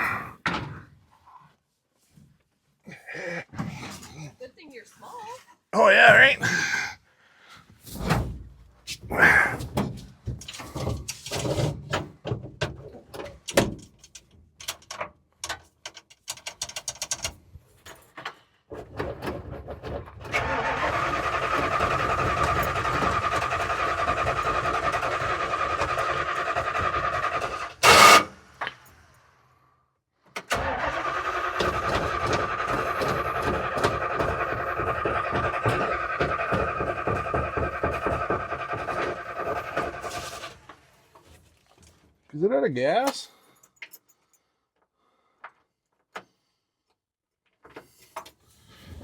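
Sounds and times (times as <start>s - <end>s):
knocks and clatter: 18.1s - 20.5s, 31.6s - 40.4s
starter motor cranking: 20.3s - 28.4s, 30.4s - 40.6s.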